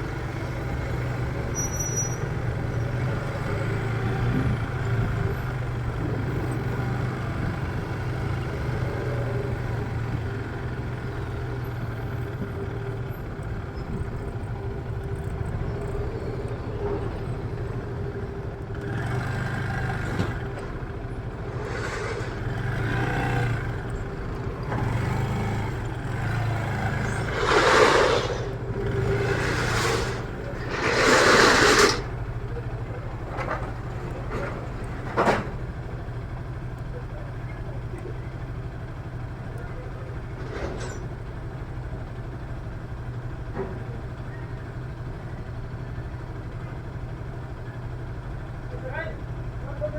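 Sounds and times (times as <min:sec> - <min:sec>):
traffic engine hum: 0:00.0 - 0:49.9
short rushing bursts: 0:21.5 - 0:22.7, 0:26.9 - 0:32.2.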